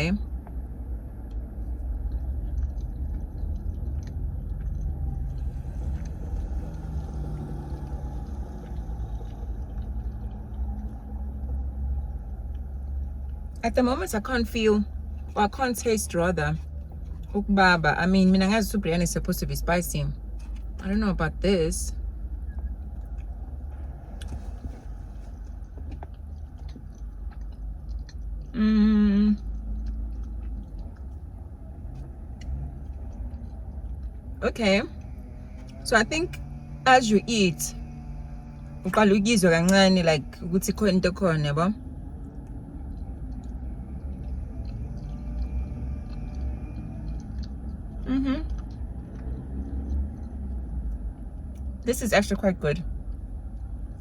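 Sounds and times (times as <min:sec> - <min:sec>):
low rumble inside car cabin: 0:00.0 - 0:54.0
person chewing food: 0:00.4 - 0:13.6, 0:22.0 - 0:28.6, 0:29.3 - 0:34.4, 0:41.8 - 0:51.8
person humming mmm: 0:28.5 - 0:29.4, 0:48.0 - 0:48.6.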